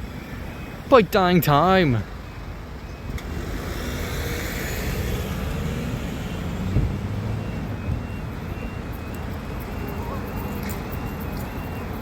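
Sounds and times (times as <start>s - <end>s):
vehicle engine and tyre rumble: 0.0s - 12.0s
short thump: 6.7s - 7.0s.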